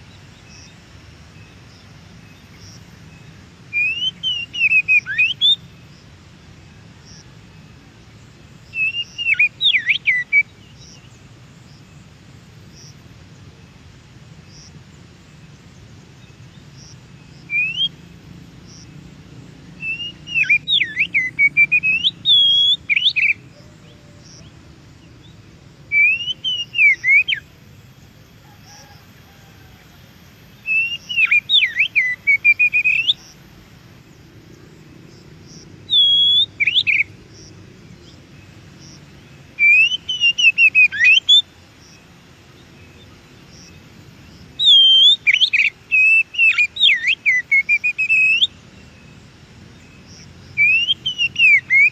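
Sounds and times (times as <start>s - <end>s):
bird singing whistled phrases: 3.7s - 5.6s, 8.7s - 10.5s, 17.5s - 18.0s, 19.8s - 23.4s, 25.9s - 27.4s, 30.6s - 33.2s, 35.9s - 37.1s, 39.6s - 41.4s, 44.6s - 48.6s, 50.6s - 51.9s.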